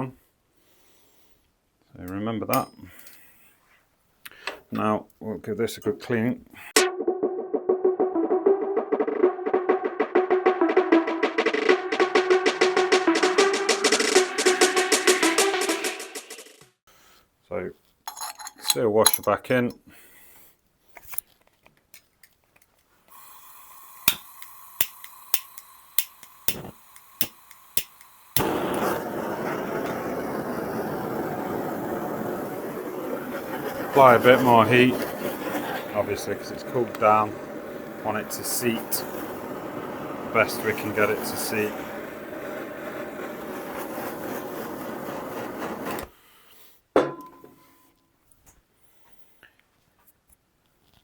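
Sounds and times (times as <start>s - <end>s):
sharp metallic clink: 2.5s - 3.2s, 18.1s - 19.3s, 24.1s - 28.0s
heat gun blowing: 23.1s - 46.1s
sharp clicks: 24.1s - 28.5s.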